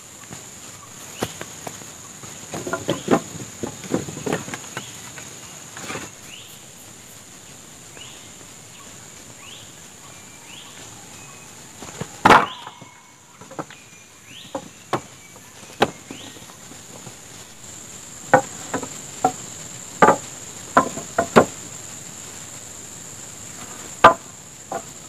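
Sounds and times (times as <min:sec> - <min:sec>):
insects droning: 0:00.0 - 0:25.0
wood knocking: 0:01.2 - 0:05.0, 0:11.8 - 0:12.8, 0:14.4 - 0:17.2, 0:18.2 - 0:21.7, 0:23.7 - 0:25.0.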